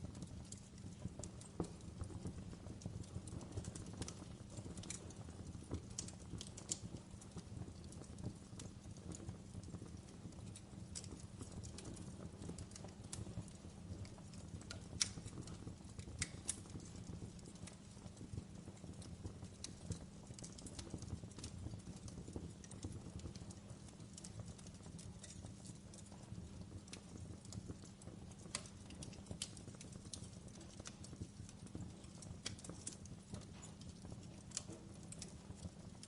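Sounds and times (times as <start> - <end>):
wood fire crackling: 0.0 - 36.0.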